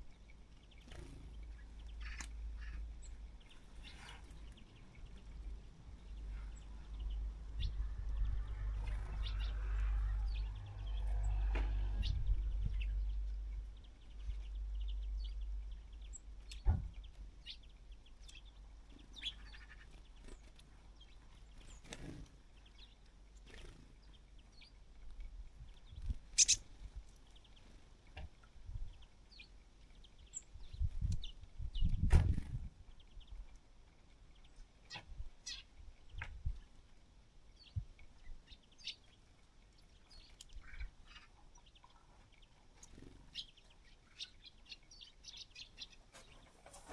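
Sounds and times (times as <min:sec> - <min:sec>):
small birds chirping: 0:00.0 - 0:46.9
low rumble: 0:05.3 - 0:17.1.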